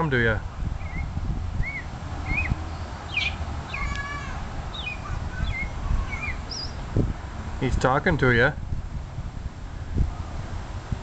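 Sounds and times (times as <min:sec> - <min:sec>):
high bird-like chirps: 0:00.8 - 0:06.8.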